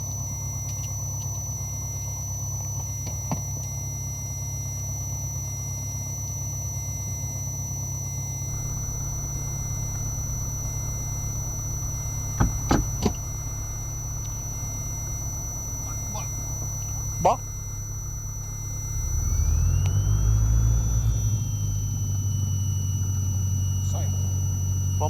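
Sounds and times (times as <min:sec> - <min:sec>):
aircraft engine idling: 0:08.4 - 0:25.0.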